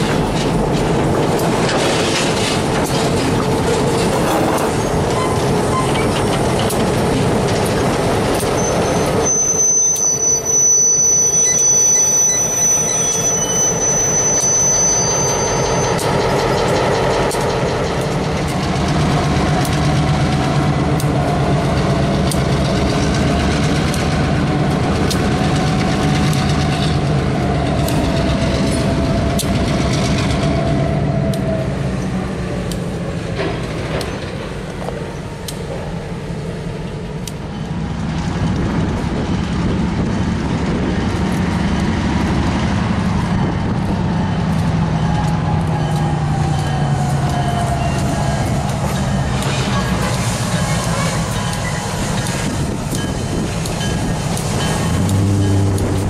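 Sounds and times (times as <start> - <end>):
diesel locomotive engine hum: 0.0 - 56.0
wheels rolling on rails: 0.0 - 56.0
high wheel squeal: 4.3 - 6.2, 8.4 - 16.4, 44.2 - 55.7.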